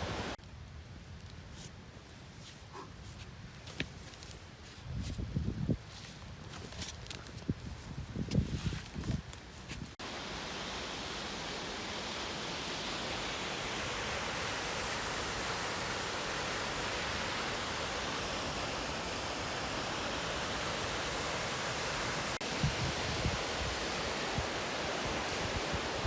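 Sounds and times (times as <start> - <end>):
water rushing: 0.0 - 0.4, 10.0 - 26.0.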